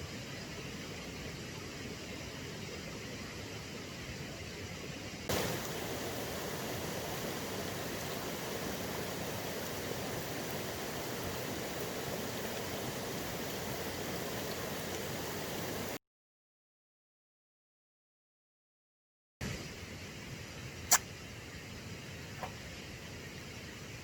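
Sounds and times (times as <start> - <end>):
steady hiss: 0.0 - 16.0
river flowing: 5.3 - 16.0.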